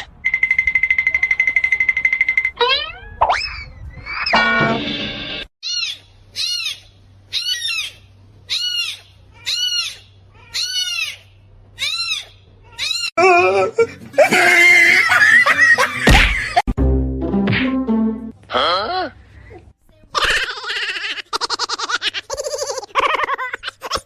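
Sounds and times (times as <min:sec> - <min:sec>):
animal high-pitched call: 0:00.0 - 0:04.4, 0:05.6 - 0:13.1.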